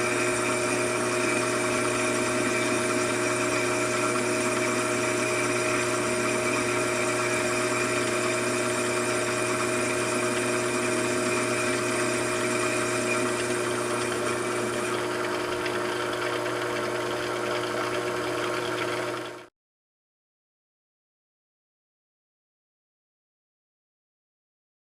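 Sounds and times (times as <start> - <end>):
machine tool motor hum: 0.0 - 19.5.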